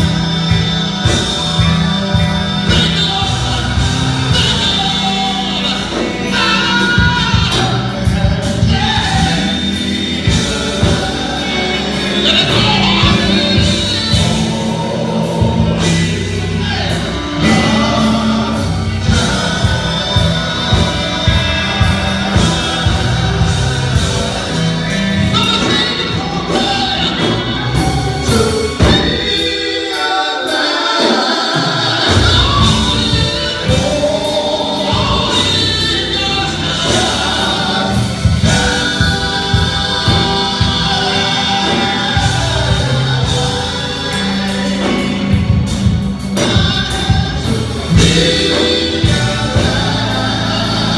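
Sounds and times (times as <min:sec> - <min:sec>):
steady bass line: 0:00.0 - 0:29.6, 0:32.0 - 0:50.9
choir singing gospel music: 0:00.0 - 0:50.9.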